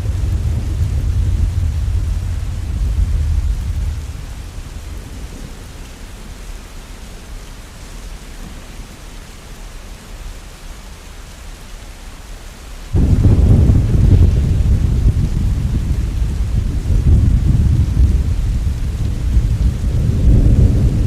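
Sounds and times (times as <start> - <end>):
rumble of thunder: 0.0 - 7.3, 12.9 - 21.0
steady rain: 0.0 - 21.0.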